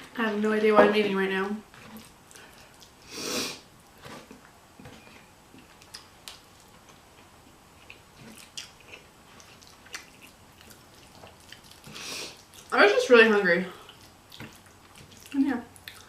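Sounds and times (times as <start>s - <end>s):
close chewing: 1.7s - 3.1s, 3.9s - 12.8s, 13.7s - 16.0s.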